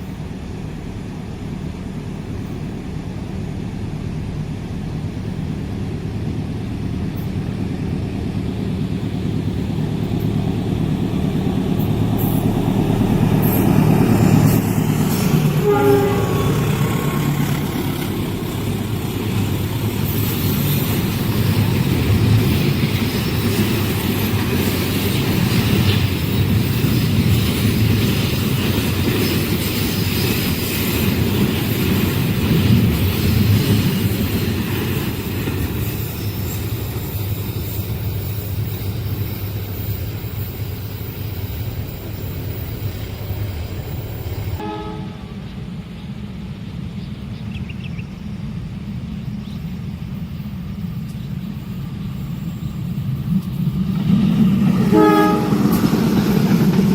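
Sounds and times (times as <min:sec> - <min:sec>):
locomotive engine drone: 0:00.0 - 0:56.9
train wheels rattling over rails: 0:04.9 - 0:44.7, 0:50.1 - 0:56.9
train horn blast: 0:15.1 - 0:17.6, 0:44.6 - 0:45.5, 0:54.8 - 0:55.9.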